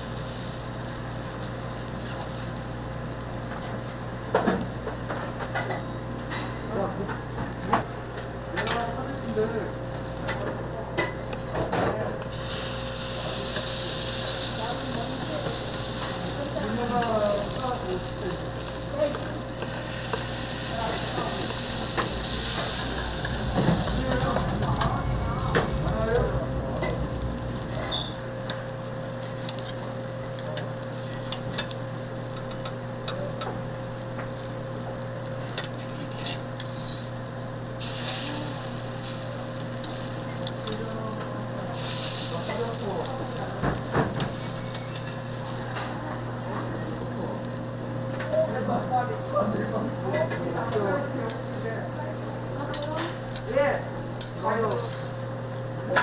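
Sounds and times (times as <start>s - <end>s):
food sizzling on a griddle: 0.0s - 56.0s
cooking utensils clicking and scraping: 4.4s - 8.9s, 15.4s - 24.9s, 29.2s - 31.8s, 32.4s - 33.6s, 35.4s - 37.1s, 39.8s - 46.7s.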